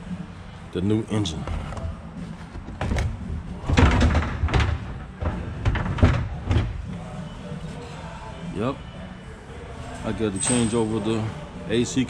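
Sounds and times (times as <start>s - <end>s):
knocks and bangs on wooden crate: 2.6s - 6.8s.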